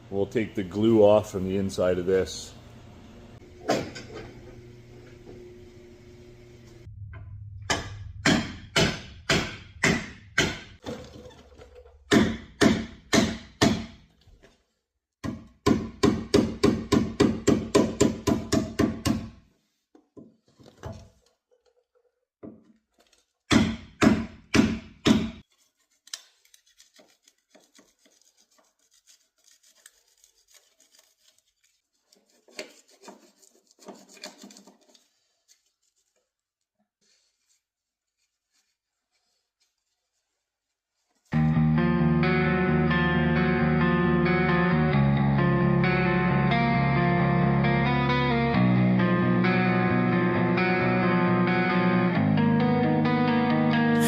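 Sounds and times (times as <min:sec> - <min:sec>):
hammer striking sheet metal: 0:07.0 - 0:10.8, 0:12.1 - 0:14.0
faint scraping and rubbing: 0:37.0 - 0:41.3.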